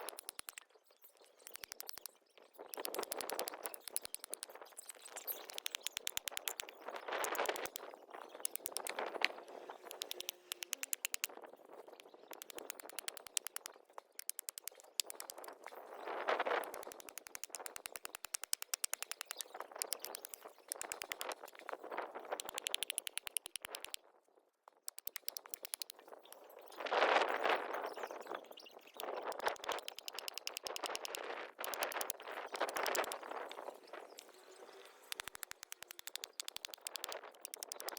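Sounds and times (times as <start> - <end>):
campfire crackling and popping: 2.8 - 9.2, 9.9 - 11.3, 12.4 - 15.5, 35.0 - 37.9.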